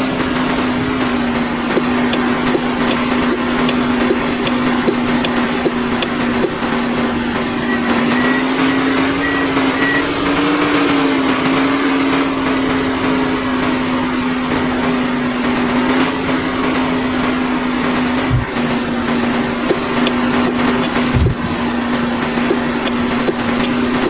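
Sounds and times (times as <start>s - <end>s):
vehicle motor humming: 0.0s - 24.0s
short high beeps: 7.6s - 10.2s.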